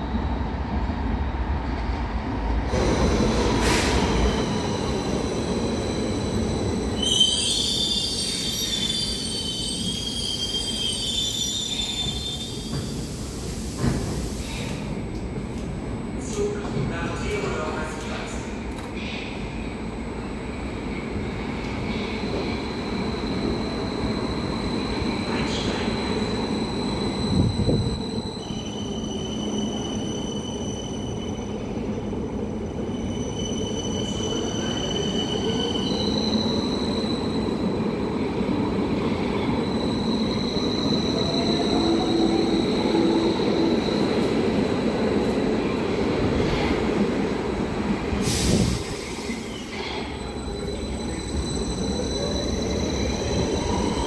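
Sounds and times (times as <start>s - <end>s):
train rumbling along track: 0.0s - 54.0s
high wheel squeal: 4.4s - 12.9s, 49.4s - 54.0s.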